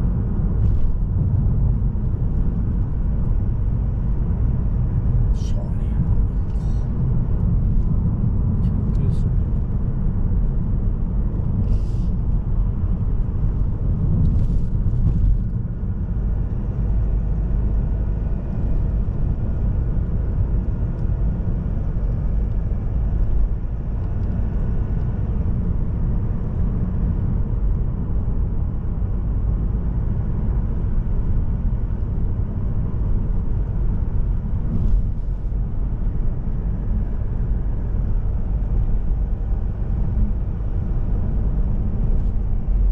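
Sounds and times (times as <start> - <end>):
car engine and tyre rumble: 0.0 - 42.9.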